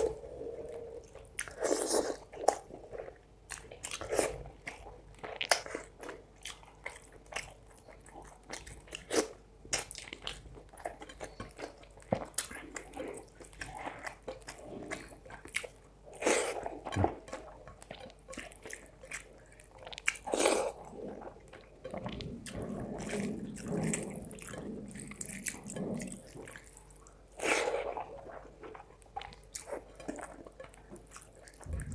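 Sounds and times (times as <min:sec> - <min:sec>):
person chewing food: 0:00.0 - 0:31.9.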